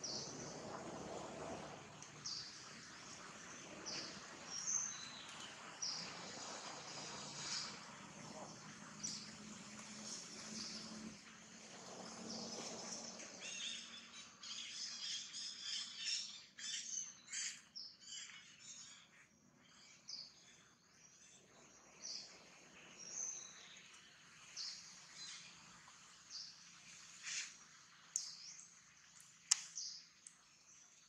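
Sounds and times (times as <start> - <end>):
small birds chirping: 0.0 - 1.1, 1.7 - 31.0.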